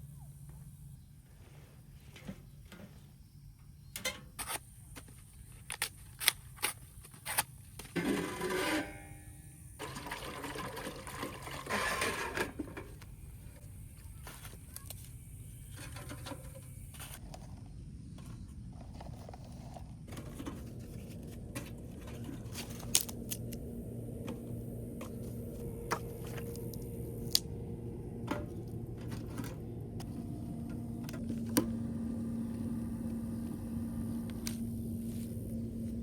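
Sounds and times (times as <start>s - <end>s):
water pouring into container: 9.8s - 12.4s.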